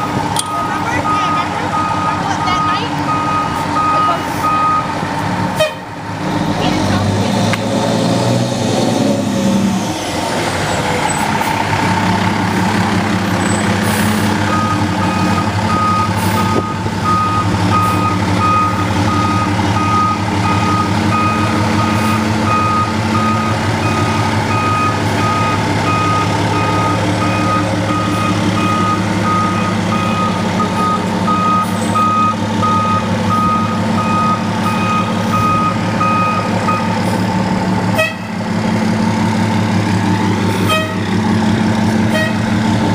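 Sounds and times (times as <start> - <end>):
diesel engine running: 0.0 - 42.9
reversing alarm beeps: 0.4 - 4.9, 14.5 - 37.0.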